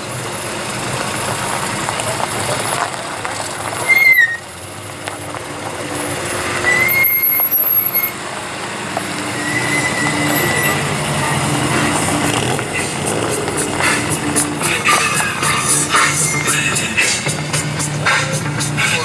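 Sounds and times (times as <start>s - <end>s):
vehicle engines running: 0.0s - 19.0s
high-pitched squeals: 3.8s - 4.5s, 6.5s - 8.3s, 9.0s - 19.0s.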